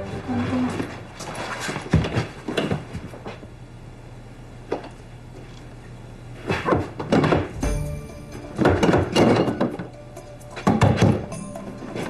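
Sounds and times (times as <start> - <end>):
quiet background music: 0.0 - 1.5, 7.5 - 12.0
low heavy thump: 7.6 - 9.2.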